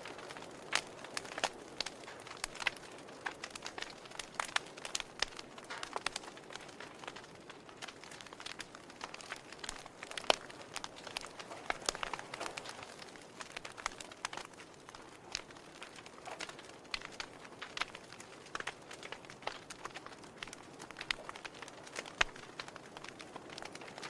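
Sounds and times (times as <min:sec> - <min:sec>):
fire crackling and popping: 0:00.0 - 0:24.0.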